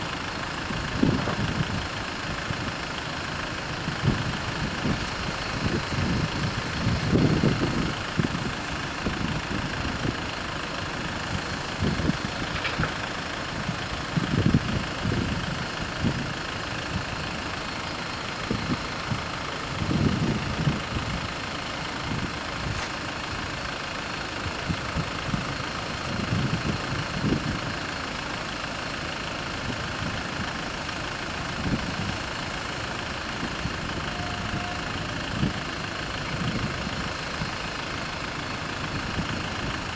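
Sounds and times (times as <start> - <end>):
vehicle engine idling: 0.0 - 39.9.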